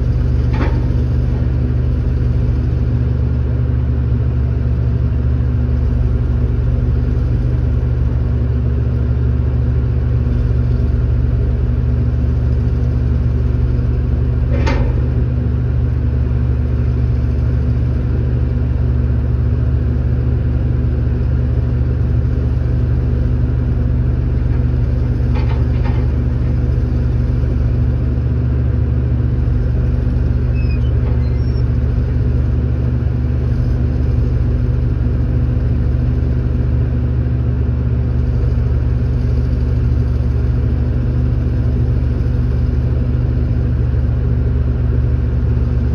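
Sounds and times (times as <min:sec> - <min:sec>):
vehicle engine running: 0:00.0 - 0:45.9.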